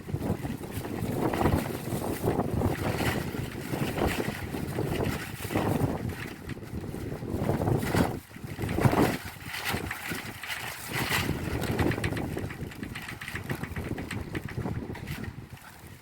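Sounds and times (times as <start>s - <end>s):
rain pattering on tiled roof: 0.0s - 16.0s
wind gusts on microphone: 0.0s - 16.0s.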